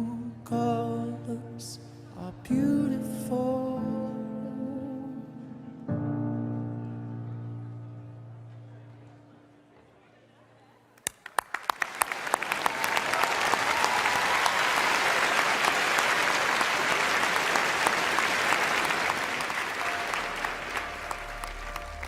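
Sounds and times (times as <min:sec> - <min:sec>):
music: 0:00.0 - 0:10.0, 0:18.4 - 0:22.0
audience applauding: 0:11.0 - 0:22.0.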